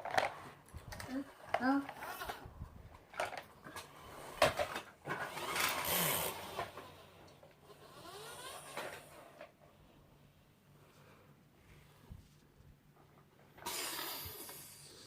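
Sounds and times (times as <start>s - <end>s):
plastic toys rattling and scraping: 0.0s - 9.6s.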